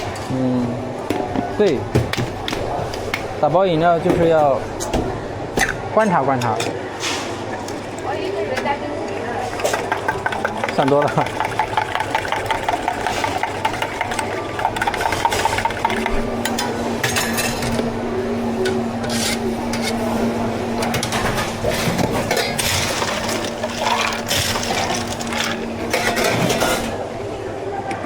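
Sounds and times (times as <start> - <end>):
machine hum: 6.6 - 28.0
liquid pouring: 9.0 - 17.6, 21.6 - 27.0.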